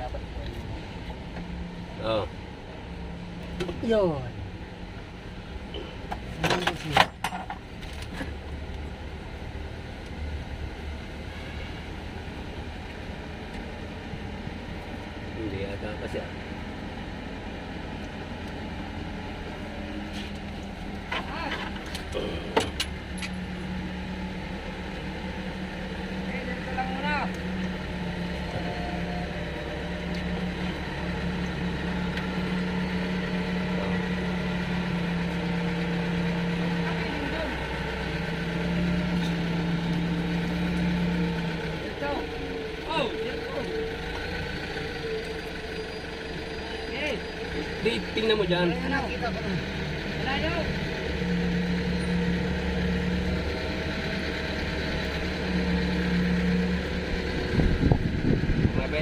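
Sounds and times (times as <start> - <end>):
engine droning: 0.0 - 59.0
humming tone: 27.3 - 35.9.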